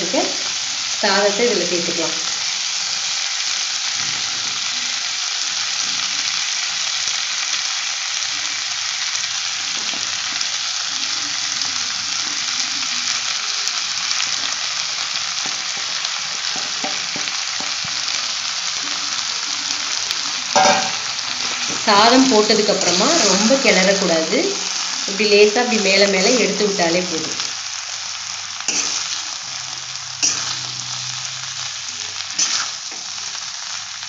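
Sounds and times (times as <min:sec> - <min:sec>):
vegetables sizzling in oil: 0:00.0 - 0:34.0.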